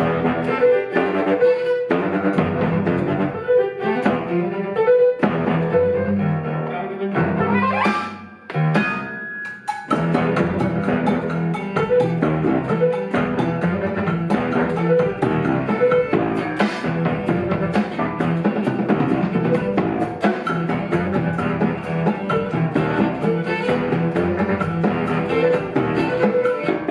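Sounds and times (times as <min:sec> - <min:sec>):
bass: 0:00.0 - 0:04.6, 0:05.2 - 0:09.1, 0:09.9 - 0:26.9
plucked strings: 0:00.0 - 0:26.9
percussion: 0:07.2 - 0:26.9.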